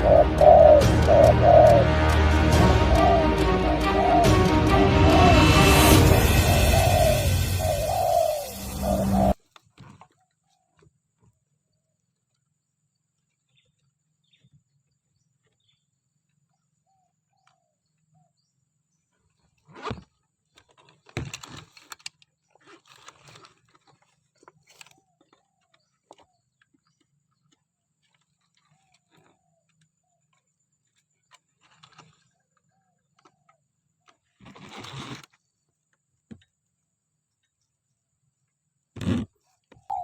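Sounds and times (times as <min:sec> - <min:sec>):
faint bird calls: 0:00.0 - 0:01.8, 0:02.9 - 0:04.4, 0:06.4 - 0:09.4, 0:39.6 - 0:40.0.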